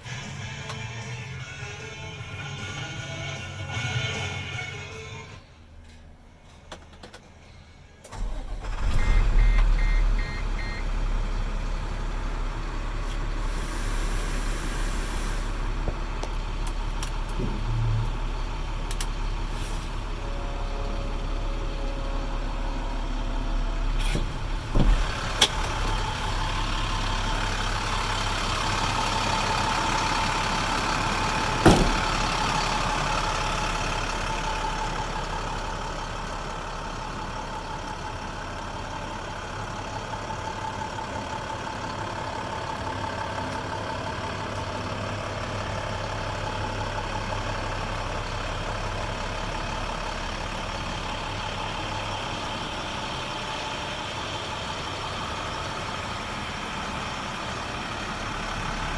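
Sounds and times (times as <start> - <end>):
diesel engine starting and idling: 0.0 - 58.9
short beeps: 8.9 - 10.9.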